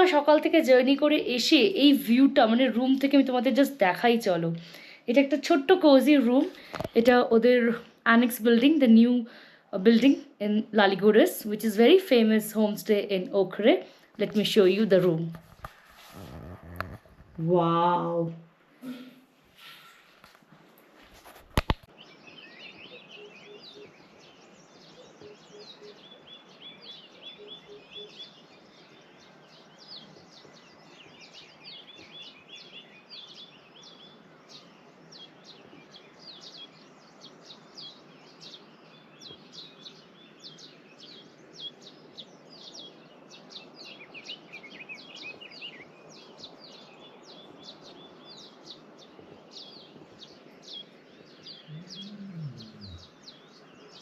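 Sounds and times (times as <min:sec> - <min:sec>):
small birds chirping: 0:00.0 - 0:20.4, 0:21.0 - 0:54.0
faint outdoor hiss: 0:00.0 - 0:54.0
soft low notes: 0:51.6 - 0:53.2.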